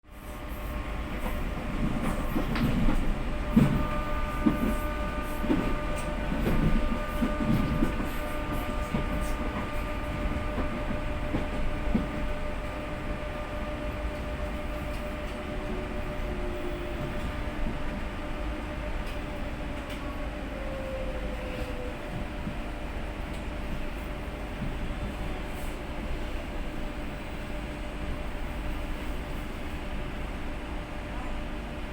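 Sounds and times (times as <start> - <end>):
train motor whine: 2.1 - 22.5.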